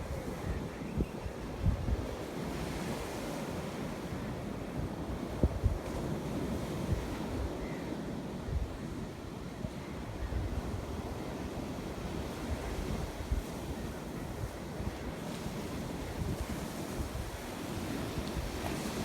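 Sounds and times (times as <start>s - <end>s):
wind buffeting microphone: 0.0s - 3.8s, 4.9s - 7.6s.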